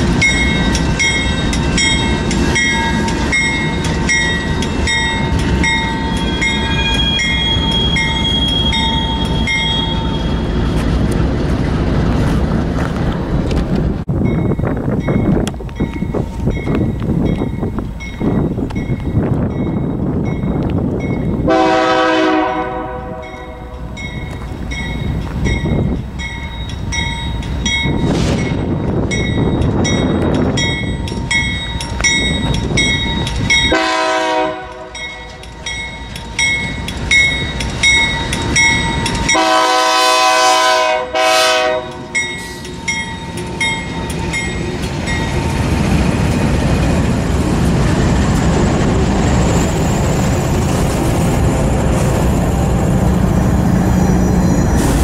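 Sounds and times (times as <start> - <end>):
diesel locomotives passing: 0.0 - 55.0
train wheels rumbling on rail: 0.0 - 55.0
bell ringing rapidly: 0.2 - 10.3
train air horn blasts: 21.5 - 23.9, 33.7 - 35.0, 39.3 - 42.6.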